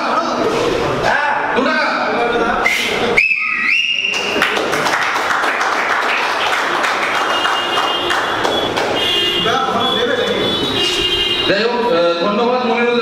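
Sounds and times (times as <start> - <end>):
shrill whistle: 2.6 - 4.4
crowd clapping: 4.0 - 9.4.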